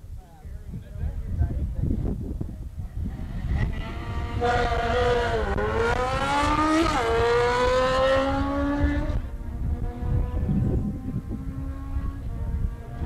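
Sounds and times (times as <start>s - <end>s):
car engine revving hard: 3.3s - 13.0s.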